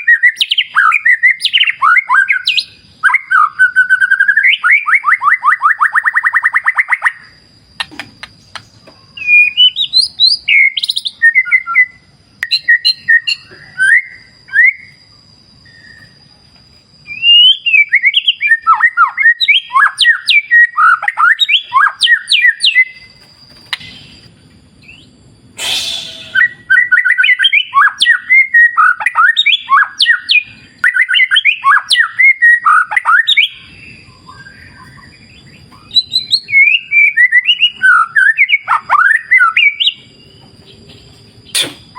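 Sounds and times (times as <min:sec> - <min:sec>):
bird singing whistled phrases: 0:00.0 - 0:07.3, 0:09.2 - 0:15.0, 0:17.0 - 0:40.1
sharp click: 0:41.5 - 0:41.9.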